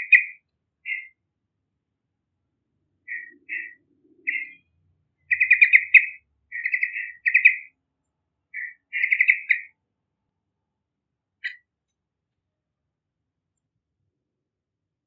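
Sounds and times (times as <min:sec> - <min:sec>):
bird singing chattering notes: 0:00.0 - 0:01.2, 0:03.1 - 0:04.6, 0:05.3 - 0:07.7, 0:08.6 - 0:09.7.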